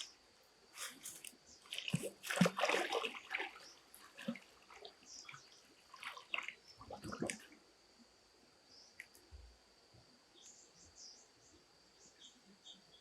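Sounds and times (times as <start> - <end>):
water splashing and sloshing: 0.8 - 7.7.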